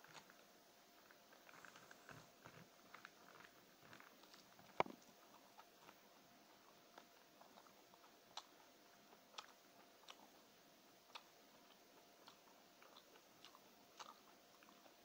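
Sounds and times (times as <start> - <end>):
faint steady hum: 0.0 - 15.0
wet chewing mouth clicks: 2.9 - 10.5, 11.1 - 15.0.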